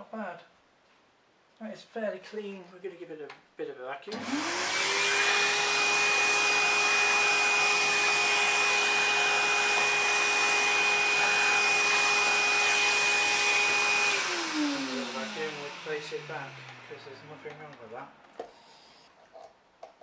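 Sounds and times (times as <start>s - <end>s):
vacuum cleaner motor whine: 4.1s - 18.0s.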